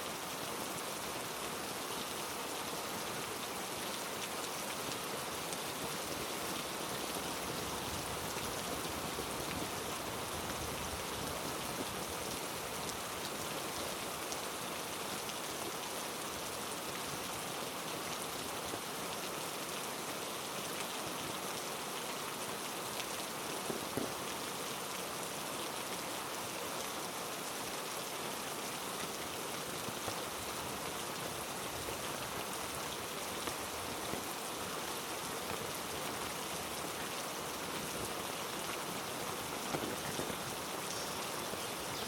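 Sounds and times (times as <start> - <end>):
heavy rain hissing: 28.3 - 42.0.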